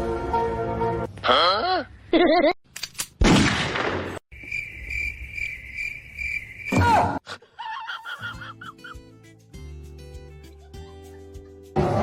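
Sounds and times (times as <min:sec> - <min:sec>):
insect-like chirping: 0:04.3 - 0:07.0.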